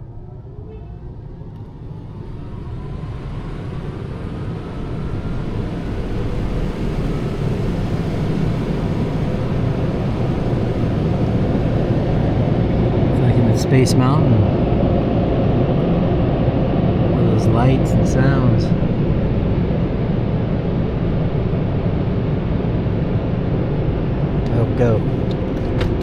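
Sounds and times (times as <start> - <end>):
faint rising whine: 0.0 - 25.7
rushing noise inside truck cabin: 0.0 - 26.0.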